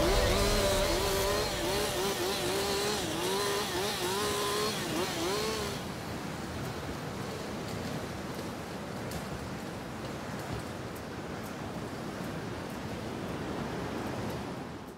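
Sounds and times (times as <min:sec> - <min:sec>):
chainsaw engine revving: 0:02.0 - 0:05.9.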